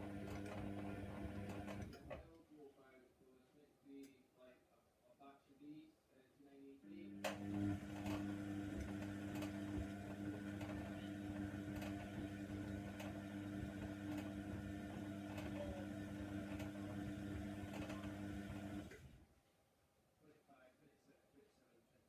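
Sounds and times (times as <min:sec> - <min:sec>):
washing machine motor humming: 0:00.0 - 0:02.2, 0:07.0 - 0:19.2.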